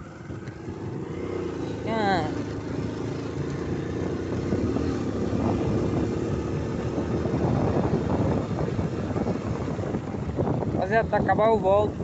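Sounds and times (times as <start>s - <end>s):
motorcycle engine running: 0.0s - 12.0s
wind noise on microphone: 3.6s - 12.0s.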